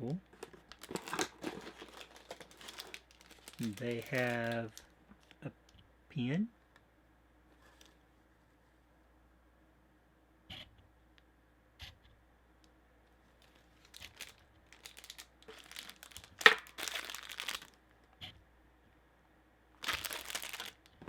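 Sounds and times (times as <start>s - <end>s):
packaging crinkling and rustling: 0.3s - 5.4s, 7.6s - 8.0s, 13.3s - 17.8s, 19.8s - 21.0s.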